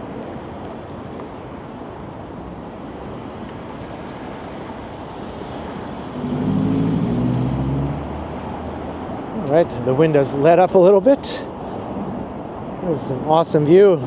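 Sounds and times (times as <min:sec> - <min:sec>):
street traffic: 0:00.0 - 0:14.0
strong gusting wind: 0:00.0 - 0:14.0
vehicle engine passing by: 0:05.7 - 0:09.4.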